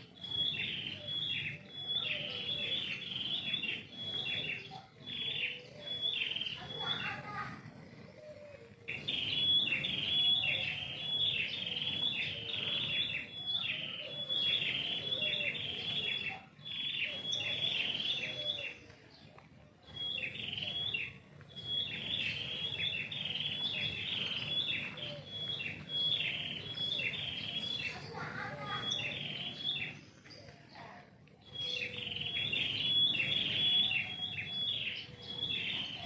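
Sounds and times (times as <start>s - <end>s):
songbird singing: 0.0s - 36.0s.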